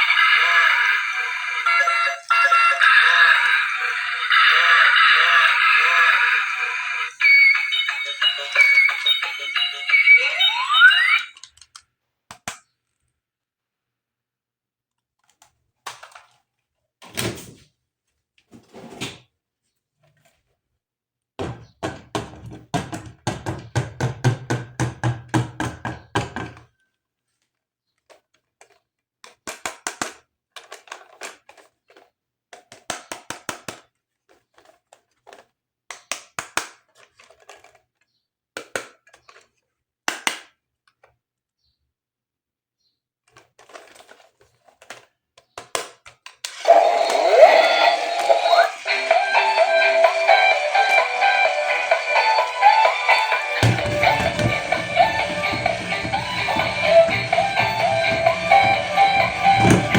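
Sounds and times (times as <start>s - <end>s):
plastic toy pieces clicking: 11.4s - 13.1s, 28.0s - 41.2s.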